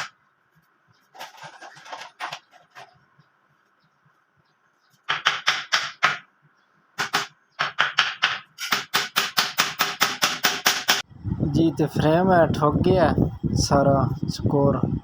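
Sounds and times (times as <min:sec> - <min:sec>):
hammer driving nails into wood: 0:05.1 - 0:06.3, 0:07.0 - 0:11.0.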